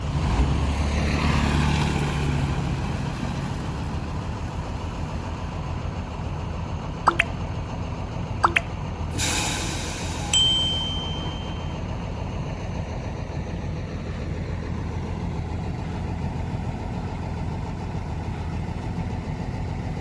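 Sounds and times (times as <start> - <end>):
diesel engine running: 0.0 - 20.0
sharp ringing clicks: 10.3 - 11.9.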